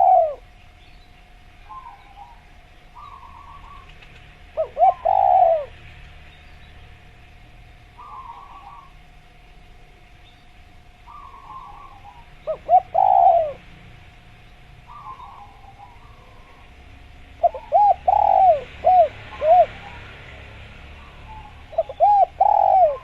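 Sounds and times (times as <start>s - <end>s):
dove cooing: 0.0s - 0.6s, 1.6s - 5.8s, 8.0s - 10.1s, 11.0s - 13.8s, 14.8s - 23.0s
faint dove cooing: 0.0s - 0.6s, 1.6s - 5.8s, 8.0s - 9.0s, 11.0s - 13.7s, 14.9s - 20.2s, 21.0s - 23.0s.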